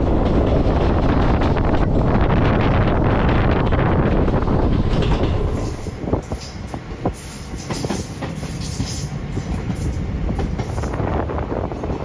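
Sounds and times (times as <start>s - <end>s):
train wheels rumbling on rail: 0.0s - 12.0s
wheels clicking over rail joints: 3.7s - 11.0s.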